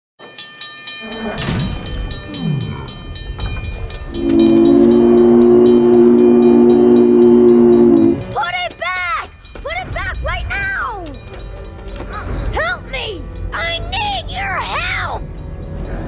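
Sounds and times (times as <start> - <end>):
train wheels clicking: 0.3 - 16.0
steam whistle blast: 4.1 - 8.3.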